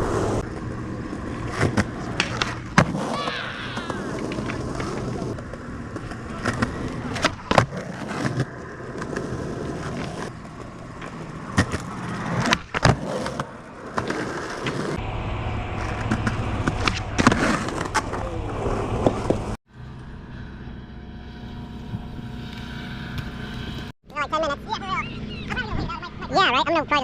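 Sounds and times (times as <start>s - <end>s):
skateboard wheels rolling on pavement: 0.0s - 23.9s
skateboard clacks and knocks: 1.4s - 15.0s.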